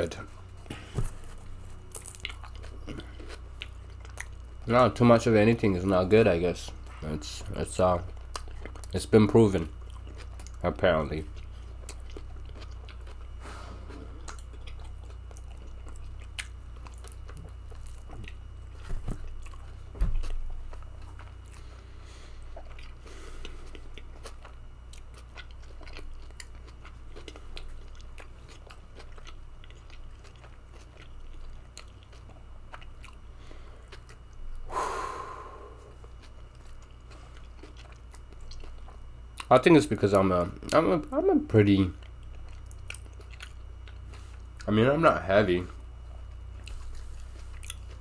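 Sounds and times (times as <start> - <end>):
steady low hum: 0.0 - 48.0
chewing with wet mouth clicks: 1.9 - 4.7, 7.9 - 13.4, 14.1 - 21.6, 22.5 - 33.2, 33.8 - 34.6, 36.0 - 40.9, 41.9 - 44.7, 46.1 - 48.0.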